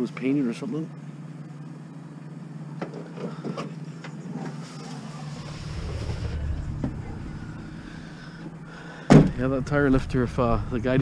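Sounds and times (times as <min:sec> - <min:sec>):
vehicle engine humming: 0:01.0 - 0:11.0
deep rumble: 0:05.0 - 0:11.0.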